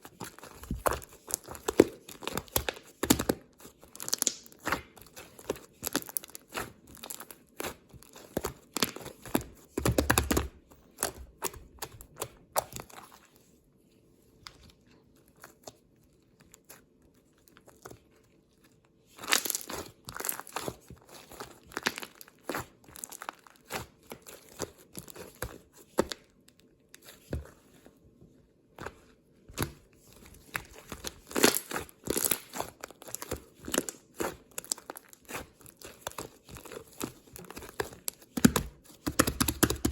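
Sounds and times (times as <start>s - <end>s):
crisp material crinkling and tearing: 0.0s - 9.2s, 14.8s - 25.4s, 30.3s - 38.4s.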